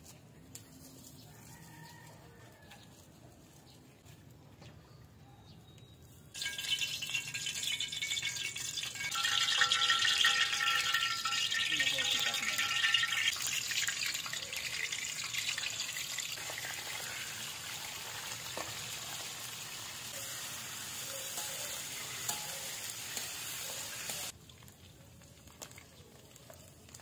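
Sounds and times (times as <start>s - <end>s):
metal turner clinking: 6.4s - 16.7s, 21.1s - 24.3s
meat sizzling in a wok: 6.4s - 24.4s.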